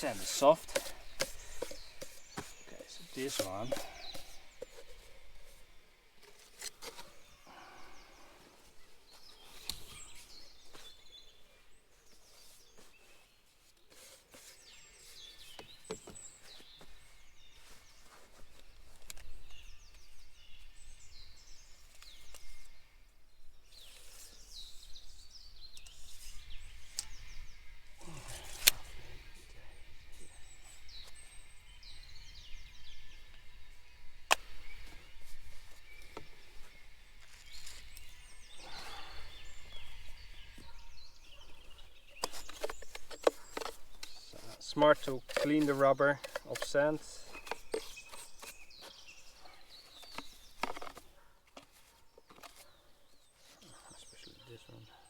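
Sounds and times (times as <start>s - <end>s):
knocks and scrapes in sand: 0.0s - 8.1s, 12.0s - 22.8s, 34.3s - 54.4s
small birds chirping: 0.0s - 55.0s.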